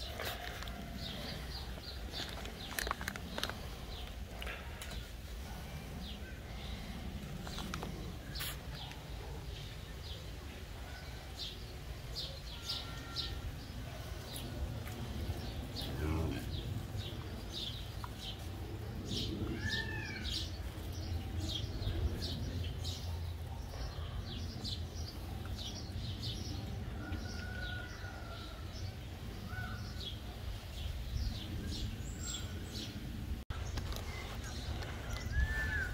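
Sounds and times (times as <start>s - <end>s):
small birds chirping: 0.0s - 35.9s
low rumble: 13.6s - 23.8s
whistled bird calls: 35.2s - 35.9s.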